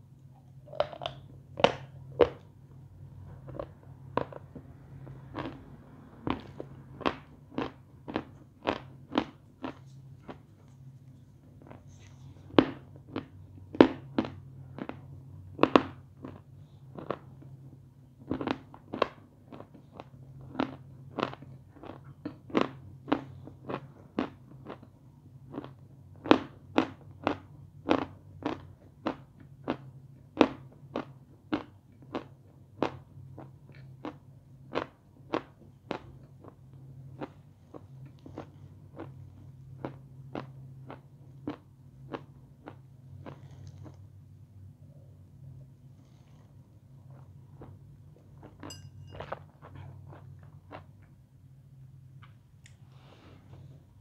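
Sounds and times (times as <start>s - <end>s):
crisp chewing crunches: 5.3s - 5.7s, 6.3s - 10.9s, 30.4s - 44.0s.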